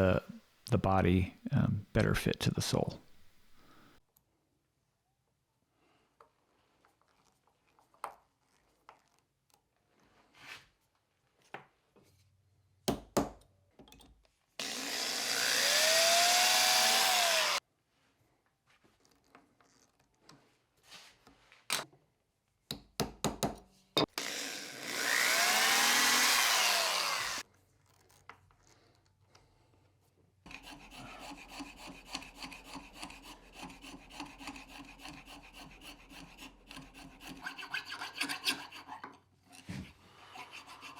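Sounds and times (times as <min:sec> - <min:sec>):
hand rasping strokes: 0:14.6 - 0:17.6, 0:24.9 - 0:27.4, 0:30.5 - 0:39.2, 0:40.1 - 0:40.9
power drill driving screws: 0:14.6 - 0:17.6, 0:24.2 - 0:27.4.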